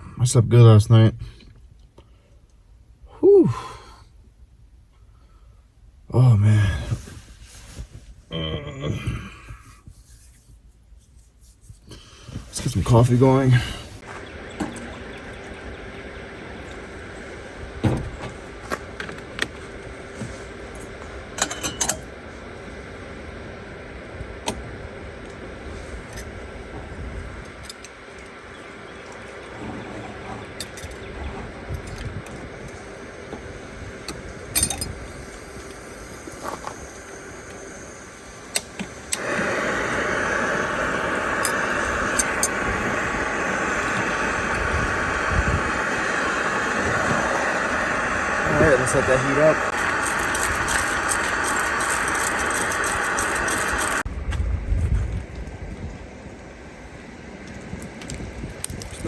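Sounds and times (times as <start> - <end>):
steady background hum: 0.0 - 59.0
gas burner hissing: 6.1 - 10.0, 11.8 - 54.1.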